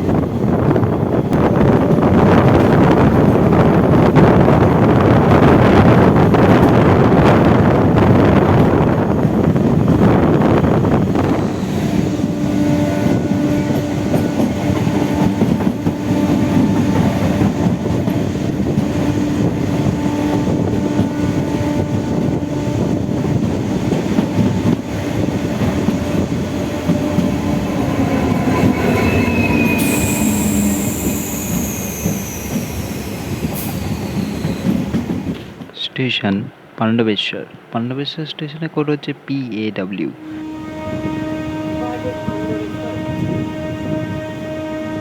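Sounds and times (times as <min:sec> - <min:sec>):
train rail rumble: 0:00.0 - 0:36.7, 0:39.1 - 0:45.0
train motor whine: 0:10.6 - 0:35.1
high-pitched squeal: 0:26.8 - 0:34.7.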